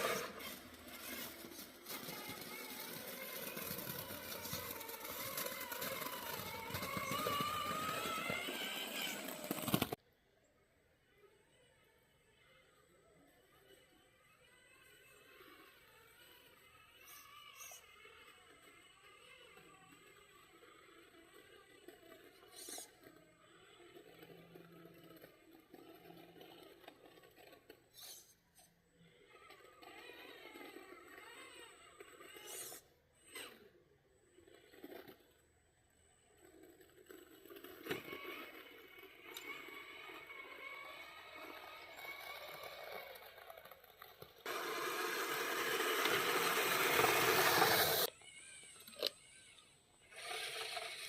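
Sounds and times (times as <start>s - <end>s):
electric motor whining: 0.0s - 10.0s, 44.4s - 49.1s.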